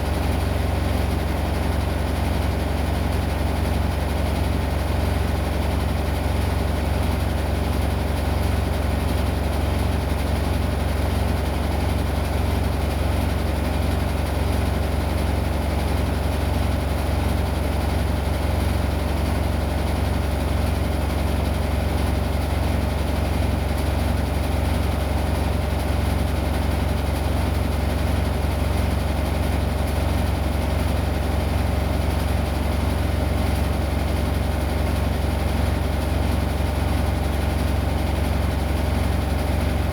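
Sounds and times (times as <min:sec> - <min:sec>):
washing machine humming: 0:37.2 - 0:39.9.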